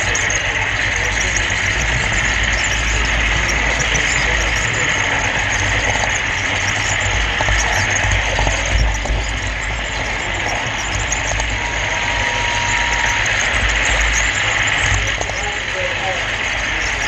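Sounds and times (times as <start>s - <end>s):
model train car rumble and whir: 0.0s - 17.0s.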